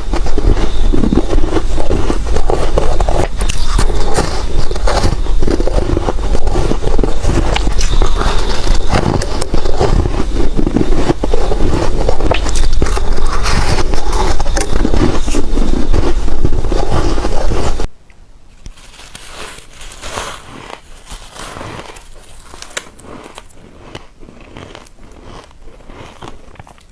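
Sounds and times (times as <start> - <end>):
crunching ice chunks: 0.0 - 15.7, 18.7 - 26.9.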